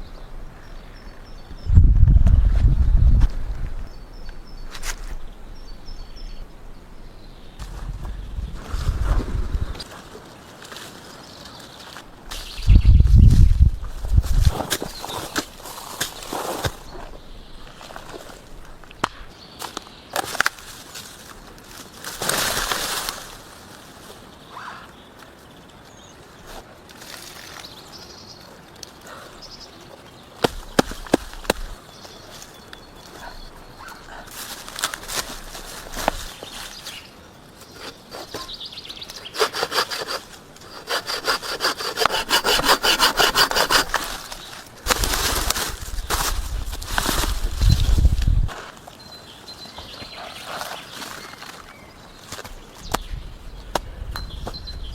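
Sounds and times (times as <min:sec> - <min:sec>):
hand saw cutting wood: 0:37.7 - 0:45.1.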